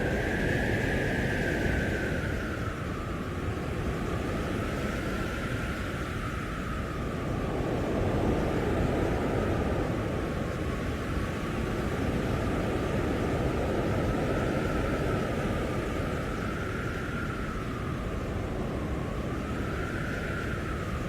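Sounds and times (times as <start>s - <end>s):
blizzard wind howling: 0.0s - 21.0s.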